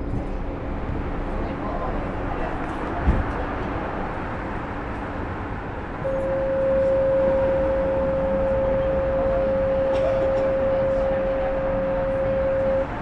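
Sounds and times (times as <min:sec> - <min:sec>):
metro train running rumble: 0:00.0 - 0:13.0
steady mid-pitched tone: 0:06.0 - 0:13.0.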